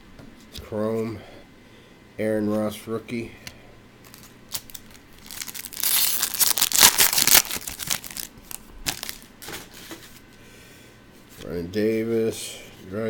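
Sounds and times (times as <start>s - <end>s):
foil wrapper crinkling: 4.0s - 9.8s.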